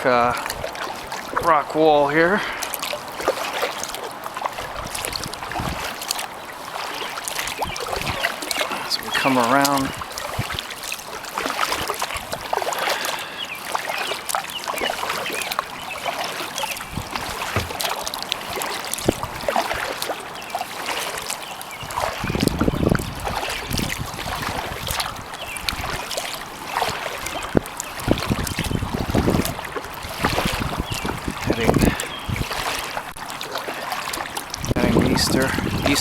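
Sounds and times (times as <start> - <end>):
paddle splashing water: 0.0 - 36.0
wind rumble on microphone: 4.6 - 6.0, 7.4 - 10.7, 16.8 - 19.8, 21.8 - 33.0, 34.5 - 36.0.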